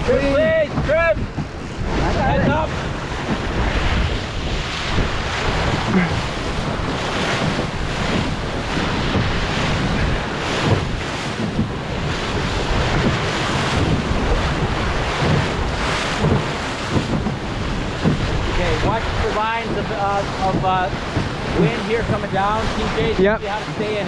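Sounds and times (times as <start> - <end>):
water rushing along a hull: 0.0 - 24.0
water splashes: 0.0 - 24.0
wind buffeting microphone: 0.0 - 24.0.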